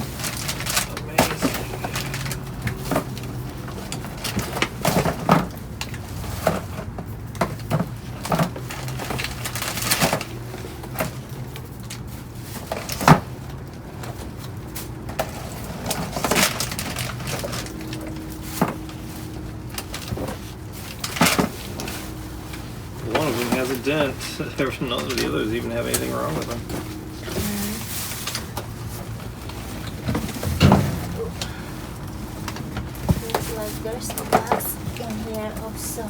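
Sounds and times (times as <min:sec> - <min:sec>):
cans and boxes clattering: 0:00.0 - 0:36.0
low steady hum: 0:15.8 - 0:36.0.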